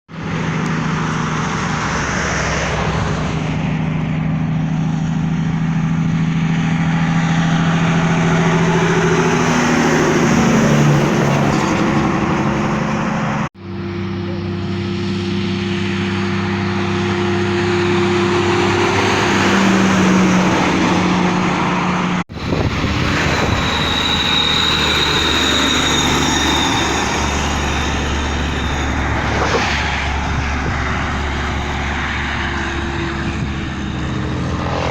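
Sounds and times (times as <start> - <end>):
truck diesel engines revving: 0.1 - 34.9.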